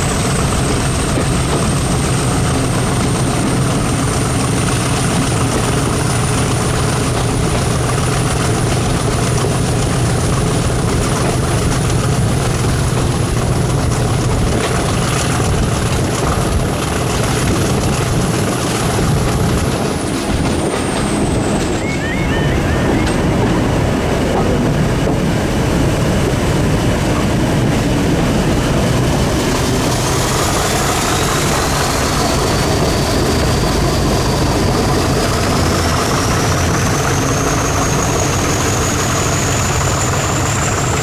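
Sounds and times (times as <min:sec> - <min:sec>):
diesel locomotive engine rumble: 0:00.0 - 0:41.0
thin high whistle: 0:21.6 - 0:23.2.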